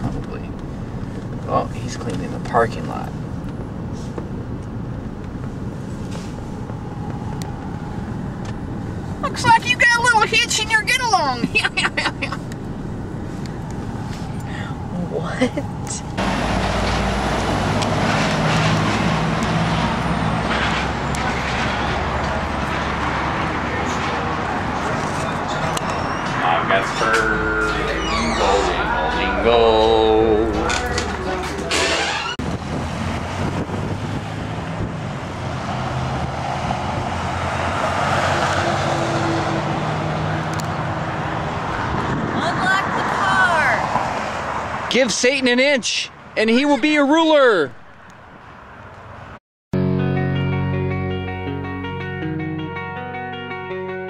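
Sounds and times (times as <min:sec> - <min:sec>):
road and wind noise hiss: 0:00.0 - 0:49.4
vehicle engine humming: 0:00.0 - 0:53.8
noisy rush: 0:03.0 - 0:38.0.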